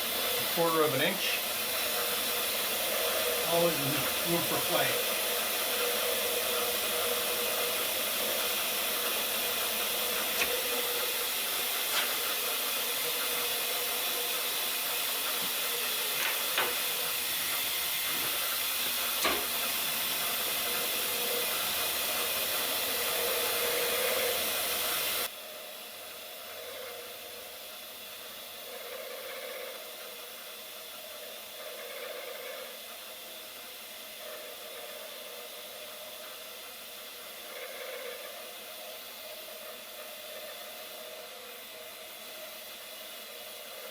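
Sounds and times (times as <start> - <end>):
compressed air hissing: 0.0 - 25.3
milling machine running: 0.0 - 43.9.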